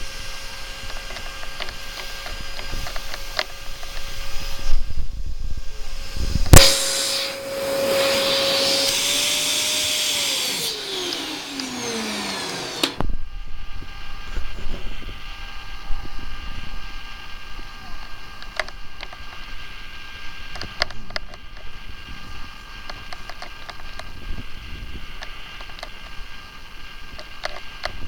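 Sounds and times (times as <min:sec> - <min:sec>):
vacuum cleaner running: 0:00.0 - 0:28.0
vacuum cleaner switch click: 0:06.5 - 0:13.1.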